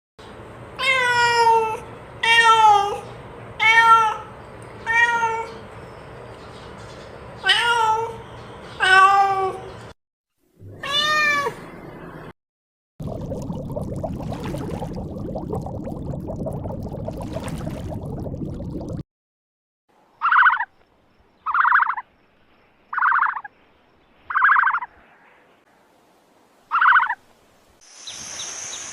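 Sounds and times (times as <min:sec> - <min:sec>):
cat meowing: 0:10.7 - 0:11.6
steady rushing hiss: 0:27.4 - 0:28.9.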